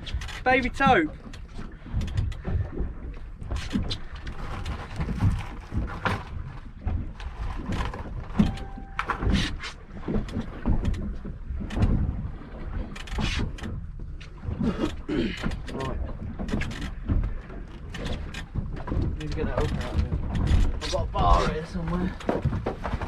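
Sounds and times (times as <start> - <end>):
knocks and thumps on boat: 0.0 - 23.0
faint steady tone: 8.4 - 9.4.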